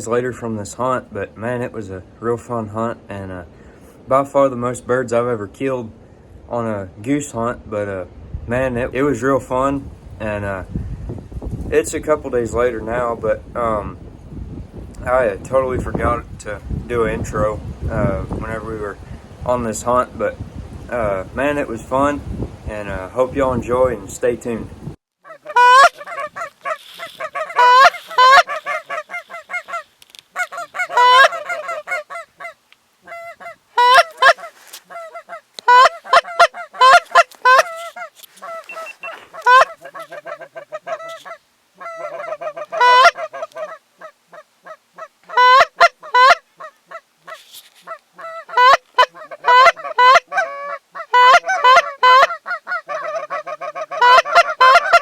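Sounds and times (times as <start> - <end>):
goose honking: 25.2 - 55.0.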